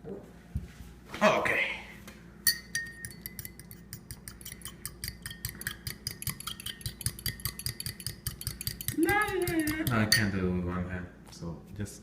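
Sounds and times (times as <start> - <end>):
fork clinking against glass jar: 2.4 - 10.4.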